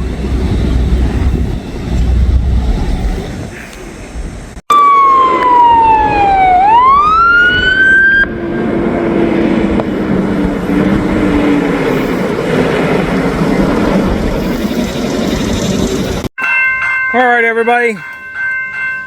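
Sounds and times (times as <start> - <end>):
emergency vehicle siren wailing: 4.7 - 16.3.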